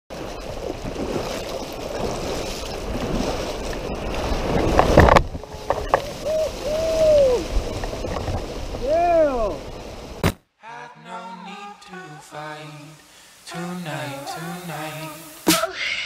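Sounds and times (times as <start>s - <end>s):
water sloshing around kayak: 0.1s - 10.2s.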